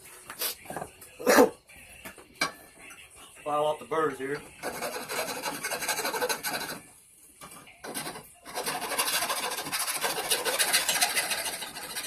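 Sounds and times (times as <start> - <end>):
hand file rasping on steel: 4.5 - 6.9, 7.8 - 12.0.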